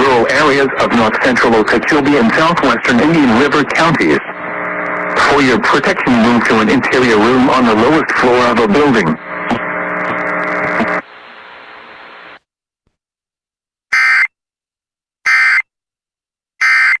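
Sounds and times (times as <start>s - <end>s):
radio broadcast hiss: 0.0s - 12.4s.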